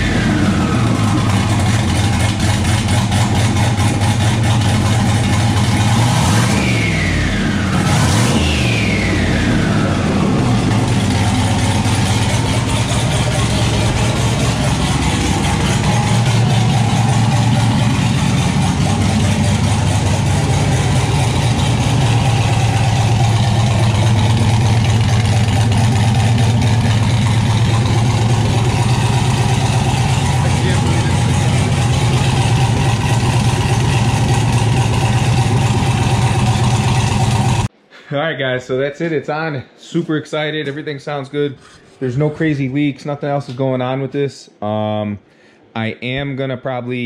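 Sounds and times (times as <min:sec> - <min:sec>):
throttle blips with falling whine: 0:00.0 - 0:04.9, 0:05.6 - 0:37.6
car engine idling: 0:00.0 - 0:37.8.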